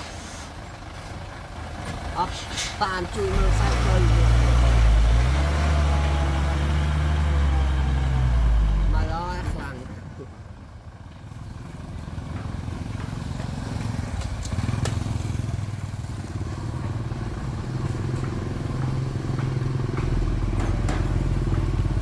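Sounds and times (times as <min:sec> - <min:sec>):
heavy diesel engine throbbing: 0:00.0 - 0:14.8.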